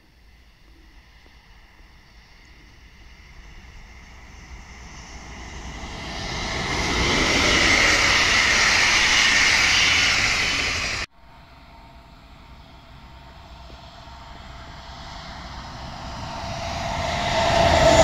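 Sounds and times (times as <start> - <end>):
passenger train passing: 0.0 - 18.0.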